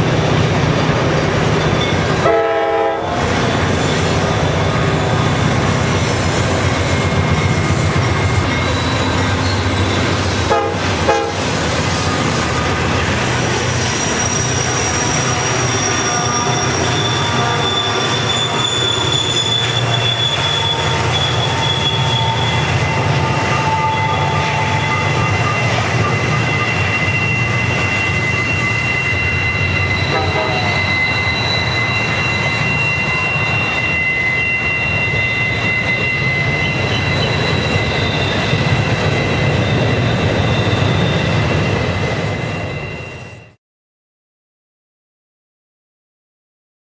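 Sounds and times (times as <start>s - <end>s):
high squealing tones: 3.0s - 43.6s.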